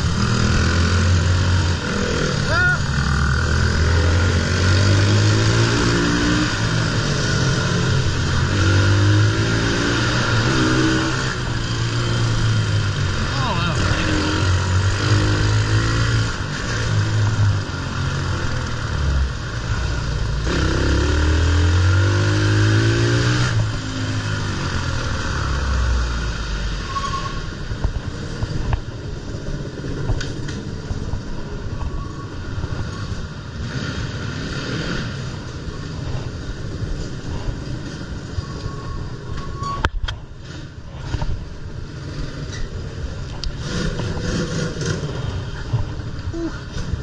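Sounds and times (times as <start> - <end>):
motorbike engine revving: 0.0 - 26.4, 40.4 - 47.0.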